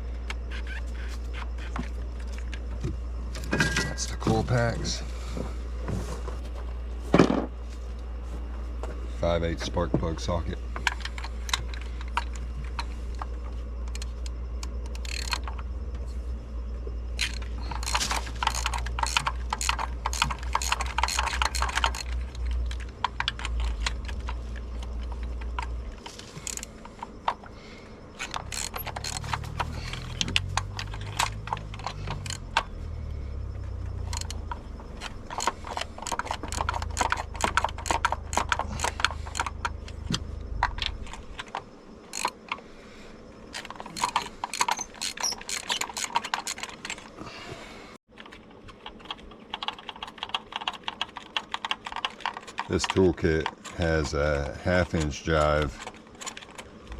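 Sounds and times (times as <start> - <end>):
ratchet wrench clicking: 13.8 - 15.7, 17.2 - 25.7, 26.3 - 26.7, 28.2 - 32.8, 34.0 - 40.9, 42.1 - 42.4, 43.6 - 47.0.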